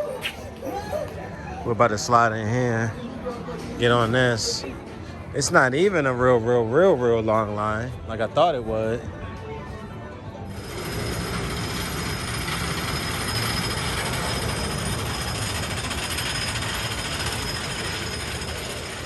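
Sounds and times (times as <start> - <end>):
amusement ride mechanical rattle: 10.5 - 19.0.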